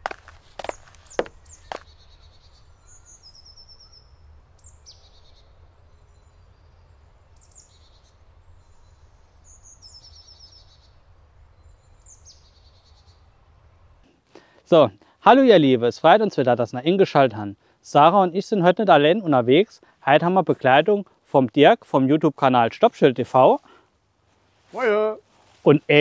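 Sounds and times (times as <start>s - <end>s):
songbirds singing: 0.0s - 14.0s.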